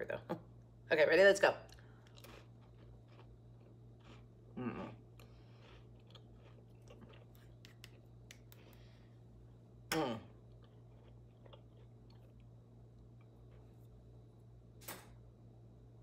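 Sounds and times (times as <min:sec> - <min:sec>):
chewing cracker crunches: 0:01.7 - 0:08.6, 0:10.4 - 0:12.5
person humming mm: 0:04.6 - 0:05.0, 0:09.9 - 0:10.3.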